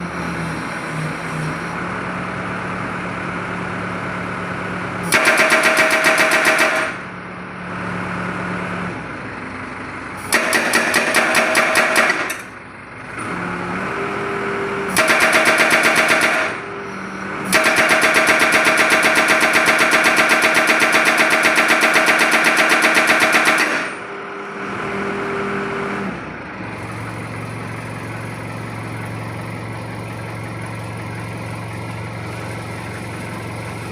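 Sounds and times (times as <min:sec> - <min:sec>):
diesel engine running: 0:00.0 - 0:33.9
hydraulic breaker hammering: 0:05.0 - 0:07.1, 0:10.2 - 0:12.6, 0:14.9 - 0:16.8, 0:17.4 - 0:24.2.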